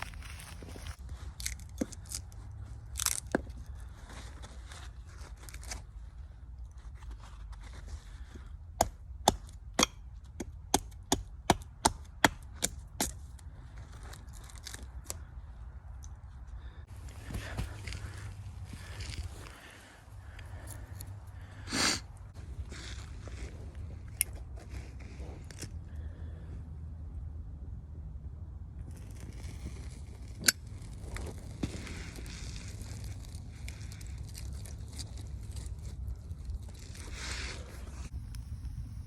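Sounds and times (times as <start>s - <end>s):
dry wood cracking and snapping: 0.0s - 3.8s, 28.9s - 37.3s
steady low rumble: 0.0s - 39.0s.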